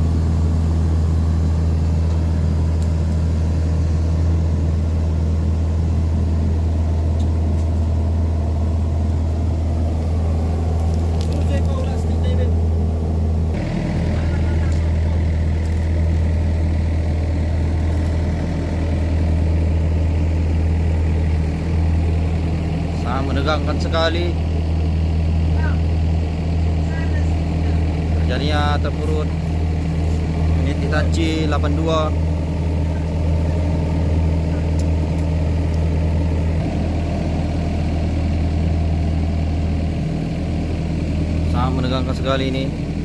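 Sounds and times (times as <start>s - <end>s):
excavator diesel engine humming: 0.0s - 43.0s.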